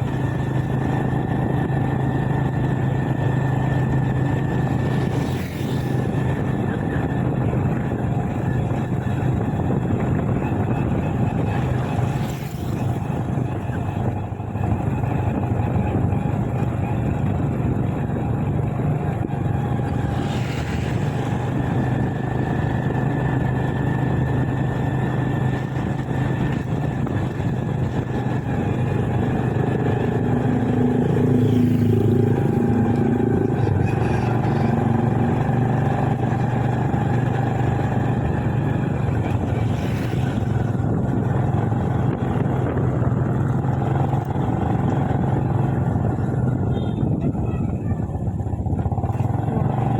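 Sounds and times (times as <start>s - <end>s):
motorbike engine running: 0.0s - 49.9s
road and wind noise: 0.0s - 49.9s
other engine rising and falling: 25.8s - 49.8s.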